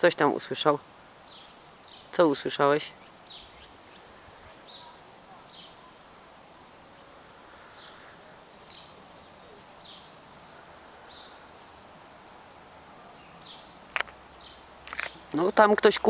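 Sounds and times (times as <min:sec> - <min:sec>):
faint outdoor background noise: 0:00.0 - 0:16.0
bird chirping: 0:01.2 - 0:06.0, 0:06.9 - 0:11.8, 0:13.0 - 0:16.0.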